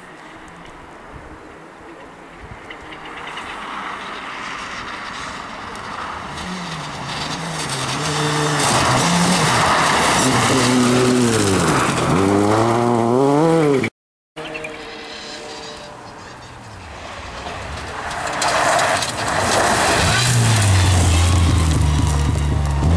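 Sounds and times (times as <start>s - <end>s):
rally car engine revving: 5.7s - 14.7s, 17.4s - 22.9s.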